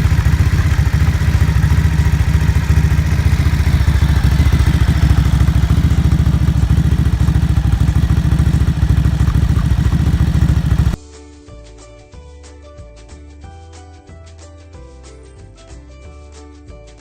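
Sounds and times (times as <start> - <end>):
motorcycle engine running: 0.0 - 11.0
quiet music: 11.0 - 17.0.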